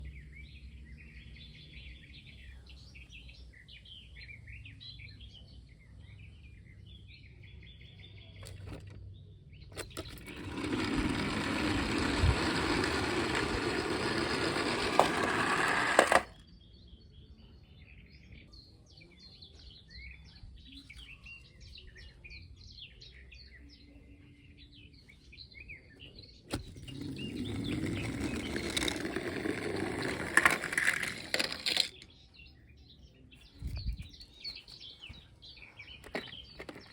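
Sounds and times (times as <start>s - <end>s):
loud rough scraping noise: 9.8s - 16.4s, 26.5s - 32.0s
small birds chirping: 16.4s - 36.9s.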